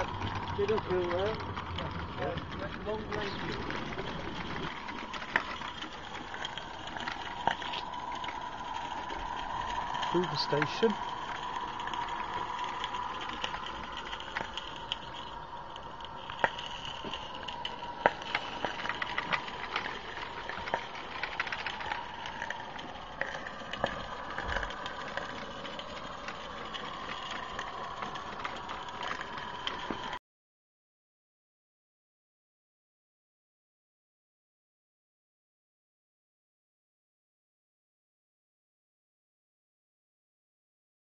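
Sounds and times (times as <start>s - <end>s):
model locomotive rattle and hum: 0.0s - 30.2s.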